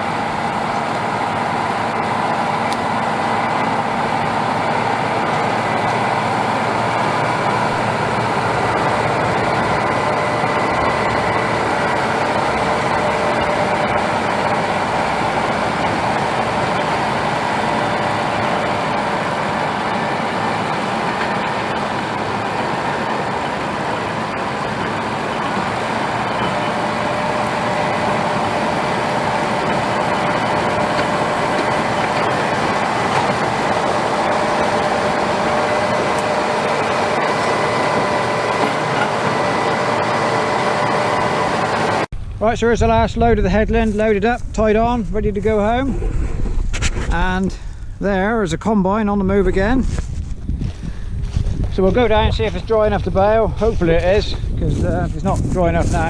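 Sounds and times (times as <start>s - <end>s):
steady whining tones: 0.0s - 42.8s
tractor engine running: 0.0s - 45.8s, 49.3s - 56.0s.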